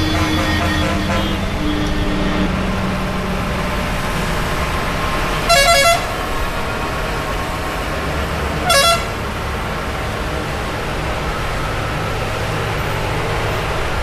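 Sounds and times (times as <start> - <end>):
vehicle horn warbling blasts: 0.0 - 2.3, 5.5 - 6.2, 8.6 - 9.2
engine rumbling: 0.0 - 14.0.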